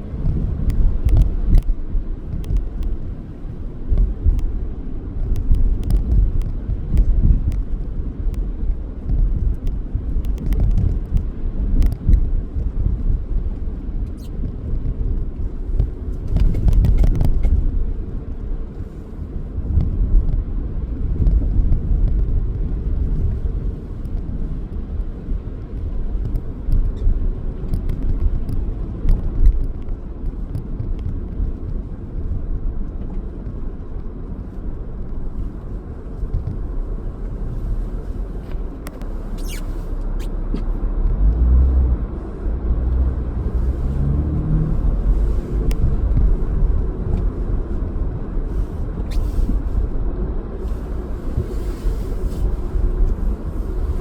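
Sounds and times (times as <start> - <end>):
car road and engine rumble: 0.0 - 54.0
small clicks and knocks: 0.7 - 1.7, 2.4 - 3.0, 5.3 - 7.7, 9.6 - 11.2.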